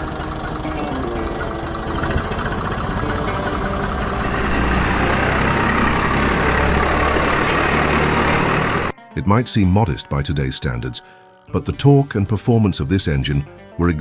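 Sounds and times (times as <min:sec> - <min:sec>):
diesel tractor engine running: 0:00.0 - 0:09.0.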